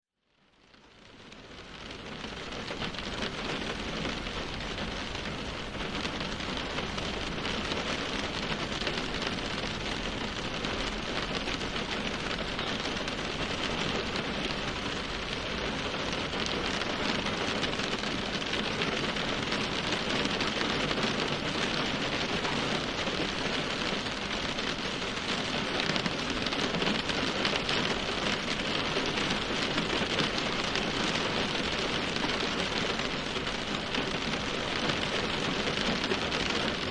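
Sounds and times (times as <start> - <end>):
steady rain falling: 0.2 - 36.9.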